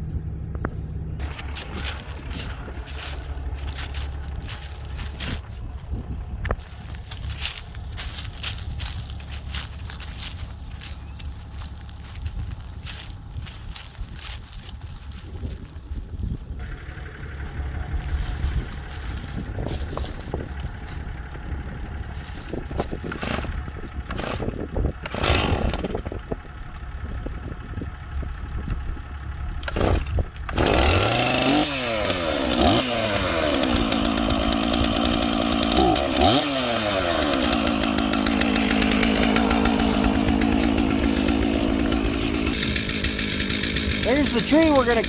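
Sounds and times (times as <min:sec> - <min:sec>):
low rumble: 0:00.0 - 0:24.9
chainsaw revving and running: 0:01.2 - 0:45.0.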